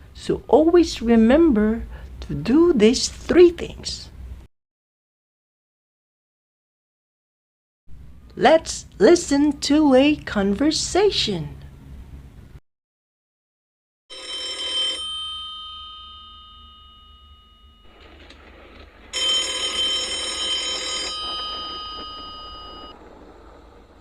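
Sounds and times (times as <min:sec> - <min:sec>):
telephone bell ringing: 0:14.1 - 0:23.0.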